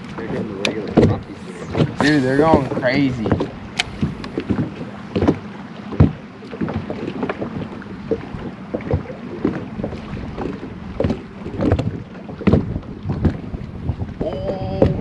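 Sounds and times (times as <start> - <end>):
water slapping hull: 0.0 - 15.0
wind buffeting microphone: 0.0 - 15.0
knocks against boat hull: 0.6 - 7.7, 11.0 - 15.0.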